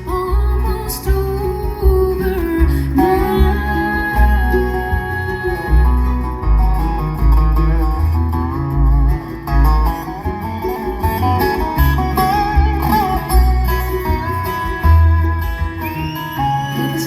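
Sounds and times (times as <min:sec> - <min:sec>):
person singing: 0:00.0 - 0:06.5
bass line: 0:00.0 - 0:17.0
bluegrass band playing: 0:00.0 - 0:17.0
sliding lead string notes: 0:00.0 - 0:17.0.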